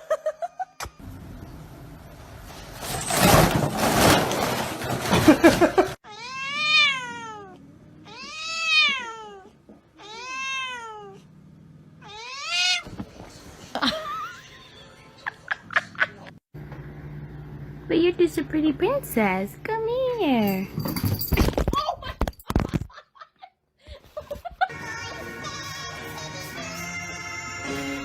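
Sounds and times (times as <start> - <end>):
cat meowing: 6.1 - 11.2, 12.0 - 12.9.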